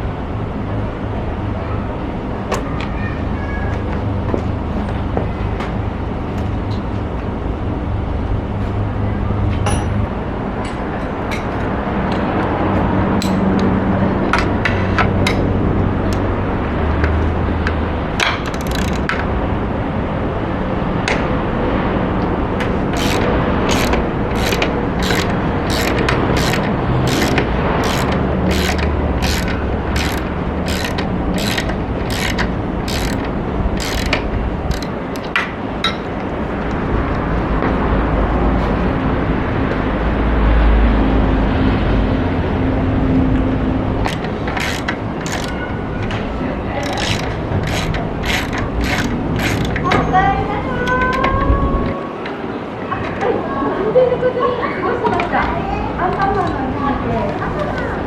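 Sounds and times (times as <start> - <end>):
ratchet wrench clicking: 18.2 - 19.2, 22.9 - 35.4, 44.1 - 45.6, 46.8 - 49.8.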